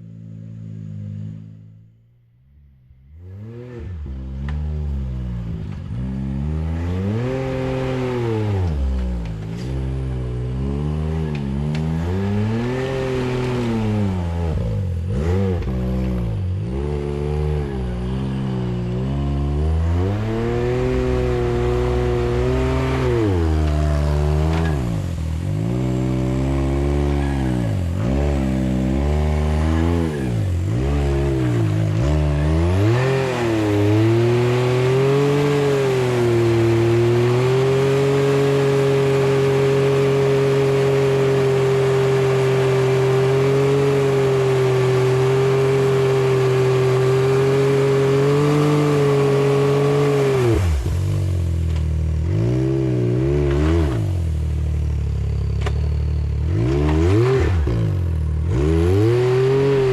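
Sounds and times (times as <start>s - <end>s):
engine revving: 0.0s - 59.9s.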